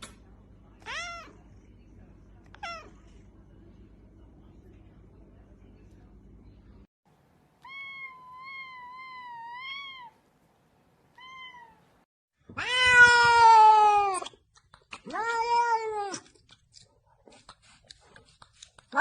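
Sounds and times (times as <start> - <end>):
cat meowing: 7.6 - 10.2, 11.1 - 11.9, 12.5 - 14.3.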